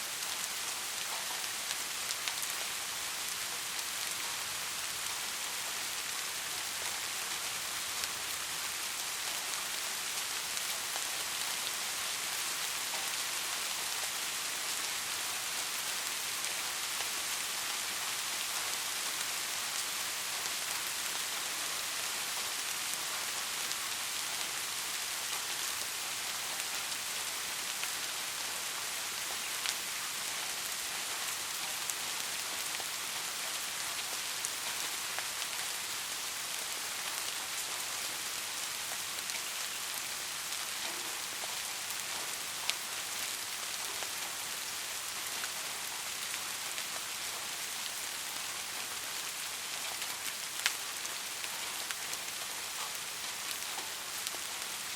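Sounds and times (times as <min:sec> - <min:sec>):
steady rain hiss: 0:00.0 - 0:54.9.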